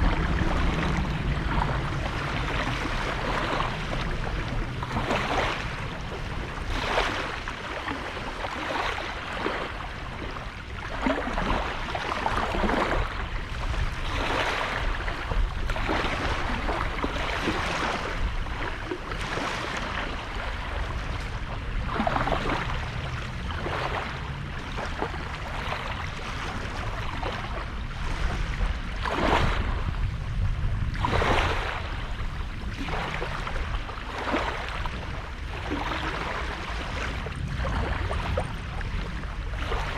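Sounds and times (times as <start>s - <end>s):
small waves breaking on beach: 0.0s - 39.9s
steady low rumble: 0.0s - 39.9s.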